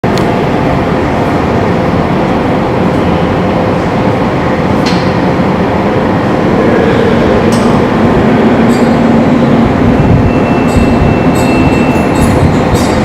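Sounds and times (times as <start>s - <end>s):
wind on metal roofing: 4.6s - 13.0s.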